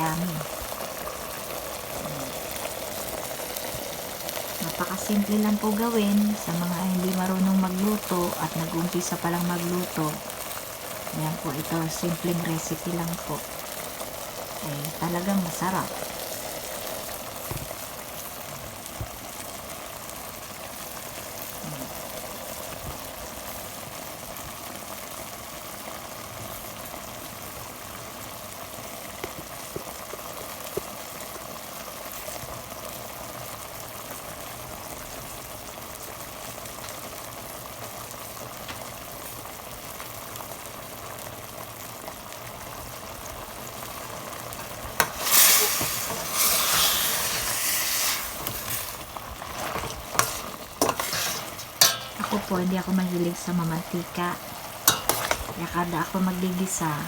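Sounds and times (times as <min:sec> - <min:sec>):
sauce bubbling and sizzling in pan: 0:00.0 - 0:57.0
loud hissing burst: 0:44.7 - 0:52.3.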